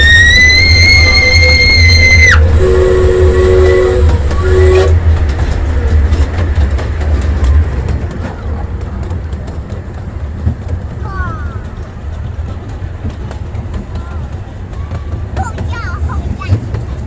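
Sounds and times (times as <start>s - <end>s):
train whistle blasts: 0.0s - 5.2s
train rumbling along: 0.0s - 17.0s
wheels clicking over rail joints: 0.0s - 17.0s.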